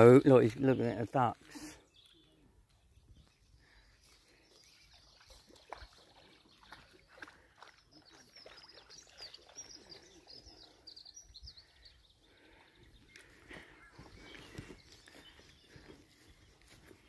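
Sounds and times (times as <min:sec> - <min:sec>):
birds chirping and trilling: 0:00.0 - 0:17.0.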